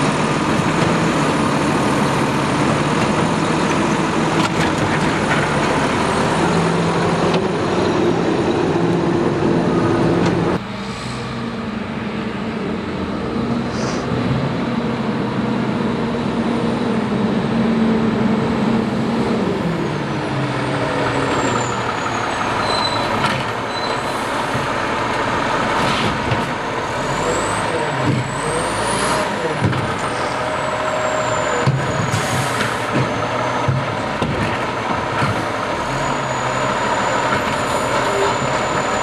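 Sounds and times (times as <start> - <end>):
truck diesel engine running: 0.0 - 39.0.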